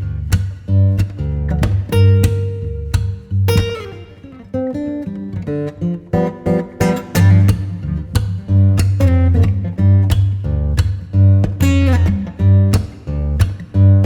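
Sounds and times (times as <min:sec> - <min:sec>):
bass line: 0:00.0 - 0:04.0, 0:06.9 - 0:14.0
acoustic guitar: 0:00.0 - 0:14.0.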